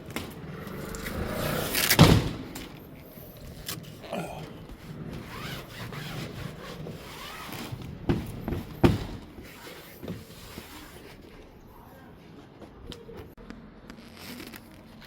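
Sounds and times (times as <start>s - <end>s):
sharp knocks and thumps: 7.6s - 10.4s.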